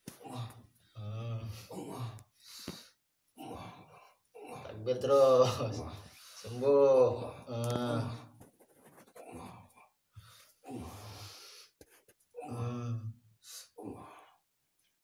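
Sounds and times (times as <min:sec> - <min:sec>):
person groaning and gasping: 0:00.2 - 0:02.3, 0:03.4 - 0:05.5, 0:06.6 - 0:08.4, 0:12.4 - 0:13.2.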